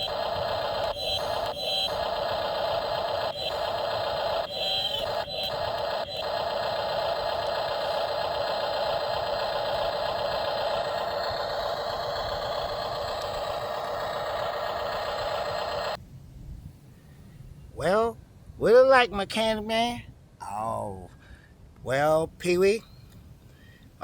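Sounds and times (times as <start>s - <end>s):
toy vehicle electric motor whining: 0.0s - 16.0s.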